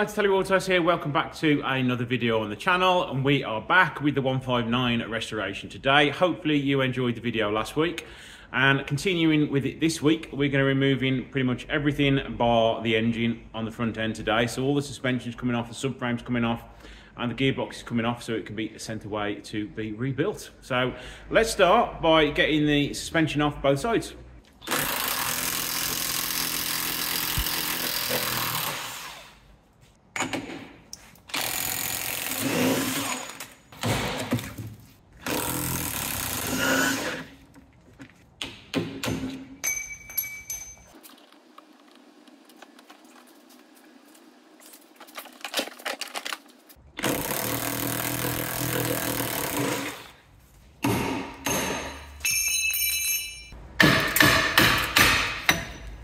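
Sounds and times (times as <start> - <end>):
impact wrench bursts: 24.6 - 29.4, 31.3 - 33.6, 35.2 - 37.3, 47.0 - 50.2.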